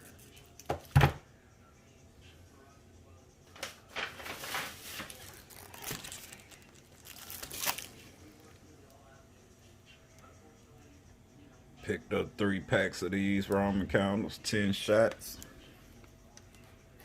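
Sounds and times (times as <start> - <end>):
plastic packaging crinkling: 4.0 - 8.1.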